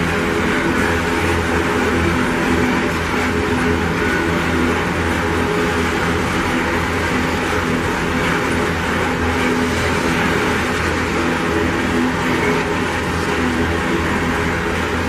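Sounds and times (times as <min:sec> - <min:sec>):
steel wheels rumbling on rails: 0:00.0 - 0:15.0.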